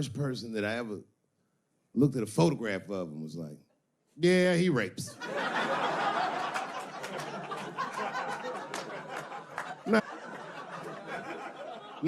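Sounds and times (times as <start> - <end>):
audience laughing: 5.2 - 12.0
scattered claps: 6.5 - 10.0.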